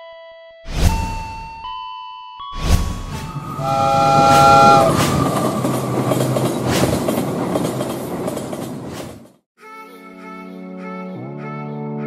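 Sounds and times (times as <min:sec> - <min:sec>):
passing train rumble and clatter: 0:03.2 - 0:09.4
train horn: 0:03.4 - 0:06.6.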